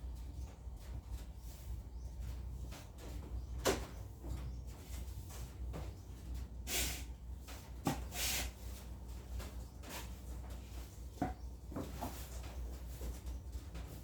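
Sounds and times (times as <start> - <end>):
rubbing or brushing noises: 4.7 - 14.0.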